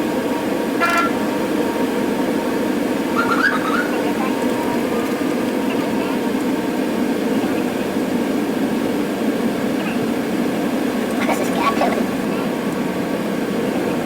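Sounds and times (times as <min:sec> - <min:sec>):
vehicle road and engine noise: 0:00.0 - 0:14.0.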